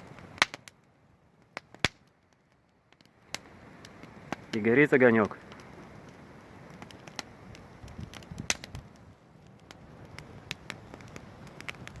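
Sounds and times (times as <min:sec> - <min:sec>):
campfire crackling and popping: 0:00.0 - 0:12.0
soft steady hiss: 0:00.0 - 0:12.0.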